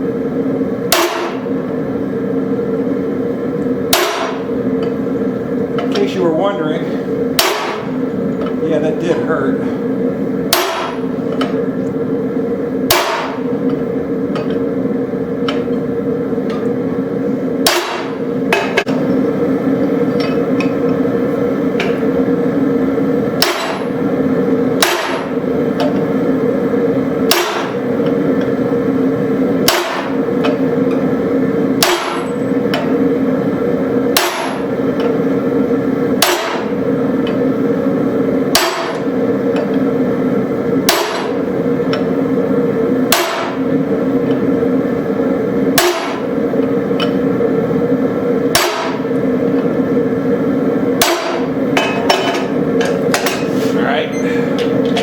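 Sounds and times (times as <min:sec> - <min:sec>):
steady hum: 0:00.0 - 0:55.0
hammer striking metal punch: 0:00.9 - 0:01.5, 0:03.9 - 0:05.0, 0:07.4 - 0:08.6, 0:10.5 - 0:11.6, 0:12.9 - 0:14.7, 0:17.6 - 0:19.1, 0:23.4 - 0:24.0, 0:24.8 - 0:26.1, 0:27.3 - 0:28.5, 0:29.6 - 0:31.1, 0:31.8 - 0:33.0, 0:34.1 - 0:35.2, 0:36.2 - 0:37.4, 0:38.5 - 0:39.8, 0:40.8 - 0:42.1, 0:43.1 - 0:43.7, 0:45.7 - 0:46.4, 0:48.5 - 0:49.7, 0:51.0 - 0:53.5.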